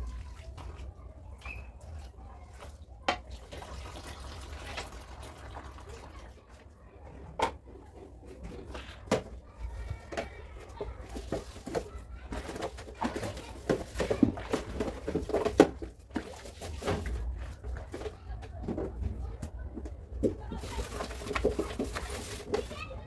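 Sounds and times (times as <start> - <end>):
knocks and clatter of handling: 7.2 - 23.0.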